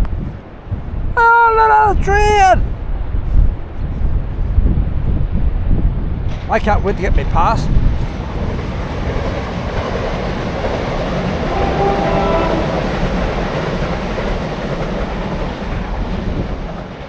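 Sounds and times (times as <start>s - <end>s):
passenger train rumbling past: 2.5s - 17.0s
train horn: 11.2s - 13.7s.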